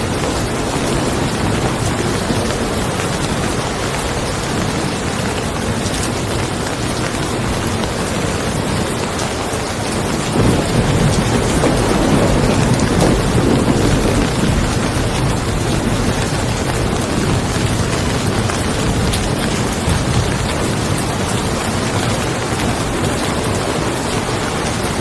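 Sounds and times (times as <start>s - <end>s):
steady rain: 0.0s - 25.0s
thunder rumbling: 0.0s - 25.0s.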